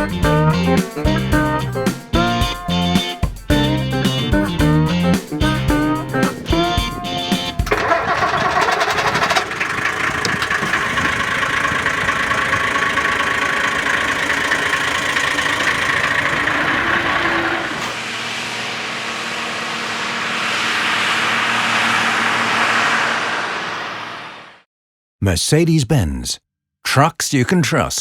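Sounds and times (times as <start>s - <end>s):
diesel truck engine running: 0.0s - 24.6s
hiss: 12.6s - 24.6s.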